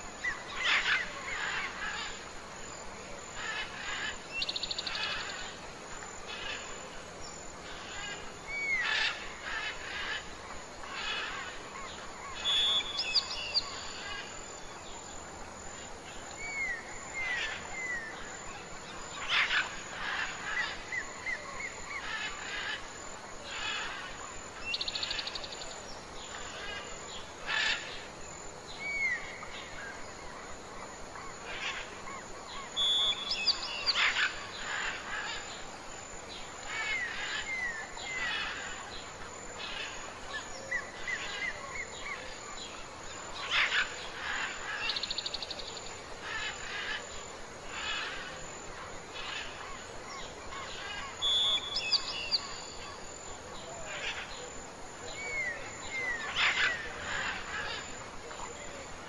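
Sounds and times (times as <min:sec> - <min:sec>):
outdoor background noise: 0:00.0 - 0:59.0
birds whistling and chirping: 0:12.4 - 0:13.9, 0:32.8 - 0:34.2, 0:51.2 - 0:52.8.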